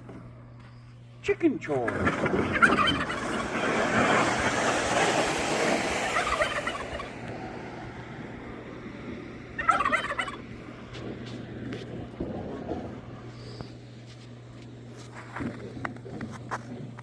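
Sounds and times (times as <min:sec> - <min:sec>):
hens clucking and squawking: 0:01.9 - 0:08.5, 0:09.4 - 0:11.0.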